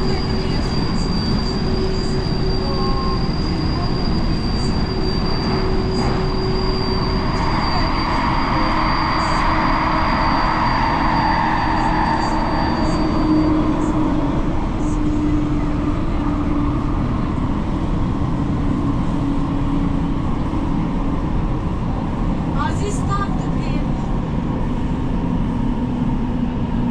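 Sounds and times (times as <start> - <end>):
high squeal: 0.0 - 20.4
train wheels rumbling on rails: 0.0 - 26.9.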